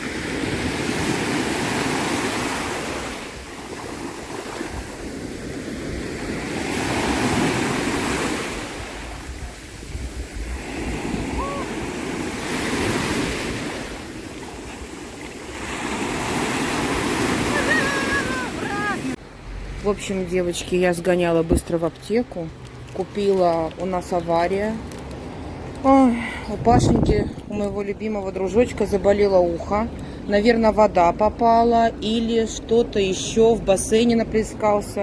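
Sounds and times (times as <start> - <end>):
sea waves breaking on shore: 0.0 - 19.8
wind on microphone: 3.3 - 15.2, 26.5 - 28.1.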